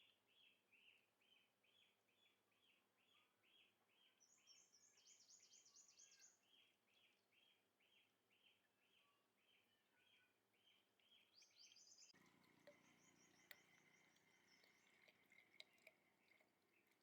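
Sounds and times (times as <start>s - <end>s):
faint chirping calls: 10.1s - 17.0s
faint low hum: 12.2s - 17.0s.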